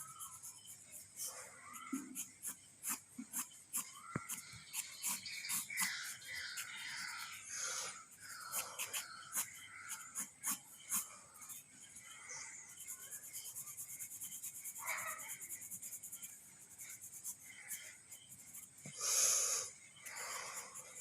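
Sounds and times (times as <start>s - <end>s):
pencil scratching on paper: 0.0s - 19.0s, 20.0s - 21.0s.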